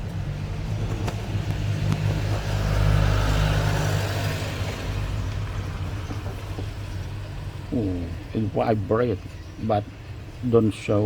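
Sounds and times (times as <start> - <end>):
motor vehicle passing by: 0.0 - 7.8.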